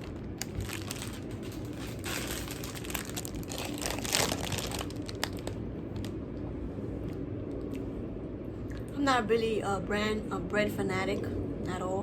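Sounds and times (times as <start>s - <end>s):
plastic wrapper crinkling: 0.0s - 6.2s.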